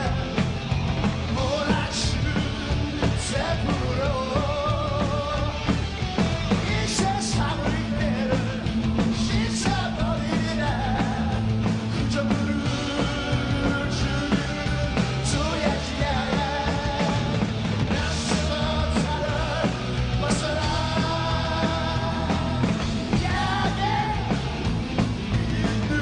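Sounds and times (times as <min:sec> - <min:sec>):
person singing lead vocals: 0:00.0 - 0:00.6, 0:01.2 - 0:05.8, 0:06.5 - 0:26.0
bass guitar: 0:00.0 - 0:26.0
distorted guitars: 0:00.0 - 0:26.0
drums crashing cymbals: 0:00.0 - 0:26.0.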